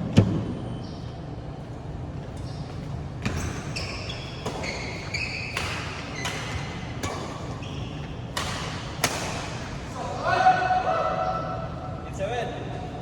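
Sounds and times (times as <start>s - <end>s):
shoes squeaking on court floor: 0.7s - 10.0s
racket hitting shuttlecock: 3.2s - 9.9s.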